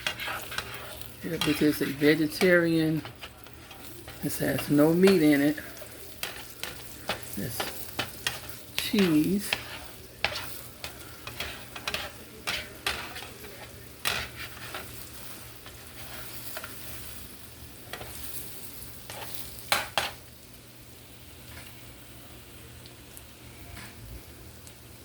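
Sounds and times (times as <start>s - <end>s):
utensil scraping and knocking pan: 0.0s - 17.0s
omelet sizzling in a pan: 0.0s - 25.0s.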